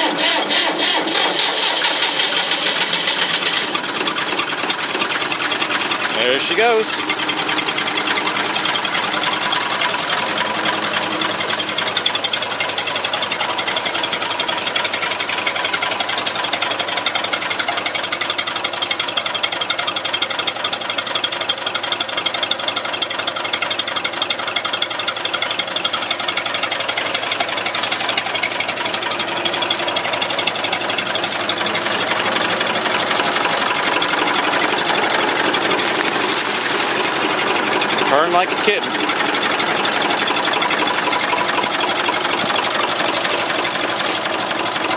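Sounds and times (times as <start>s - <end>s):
tractor engine idling: 0.0s - 44.9s.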